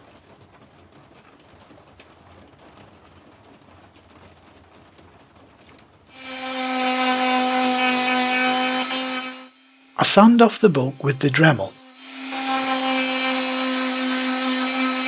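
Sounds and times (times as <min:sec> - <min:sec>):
bit grinding on wood: 0:06.2 - 0:15.0
rotary tool whining: 0:06.2 - 0:15.0.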